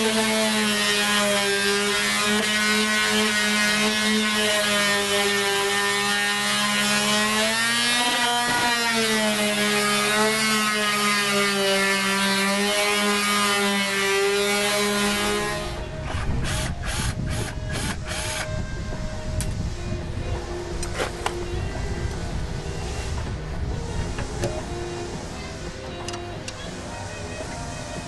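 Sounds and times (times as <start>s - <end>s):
power tool motor running: 0.0s - 18.5s.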